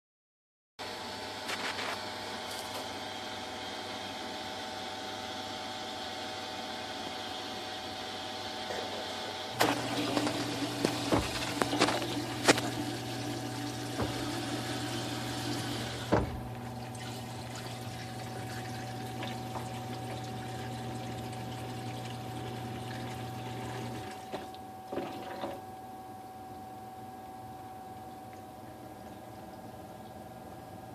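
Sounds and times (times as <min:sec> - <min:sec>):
water running through pipes: 0:09.0 - 0:30.6
low steady hum: 0:09.6 - 0:30.9.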